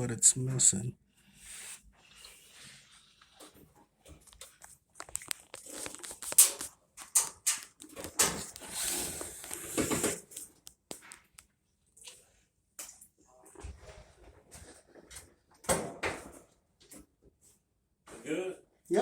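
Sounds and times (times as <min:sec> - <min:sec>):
crinkling rustles: 0:02.8 - 0:11.5.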